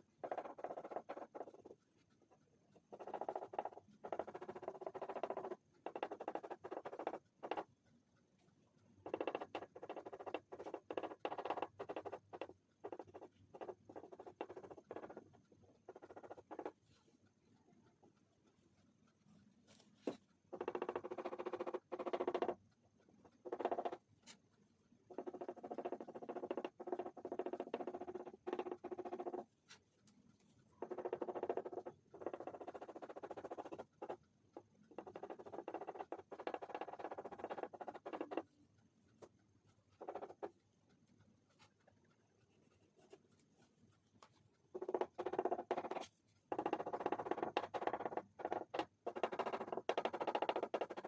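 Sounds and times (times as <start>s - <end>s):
crayon scratching on paper: 0.0s - 1.8s, 15.9s - 17.0s, 25.1s - 29.9s, 30.8s - 34.2s, 34.9s - 38.5s, 39.8s - 40.6s, 42.5s - 51.0s.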